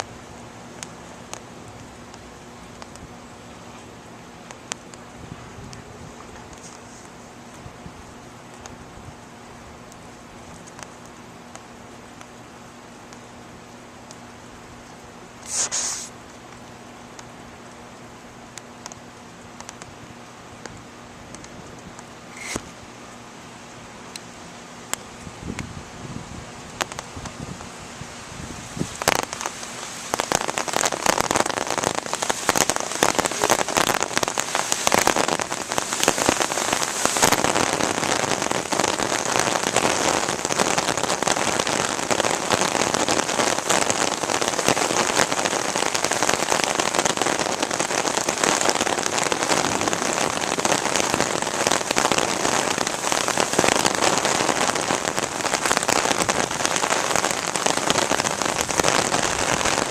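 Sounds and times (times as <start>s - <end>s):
raindrops clicking close by: 0.0s - 25.8s, 26.5s - 27.8s, 28.6s - 59.9s
heavy rain pouring: 0.0s - 59.9s.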